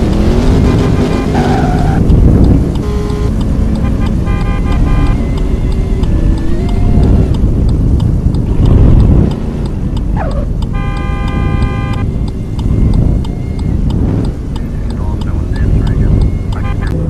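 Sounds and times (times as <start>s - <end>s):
car engines rumbling: 0.0s - 17.0s
car horn: 0.3s - 2.0s, 2.8s - 7.3s, 10.2s - 13.8s, 14.6s - 17.0s.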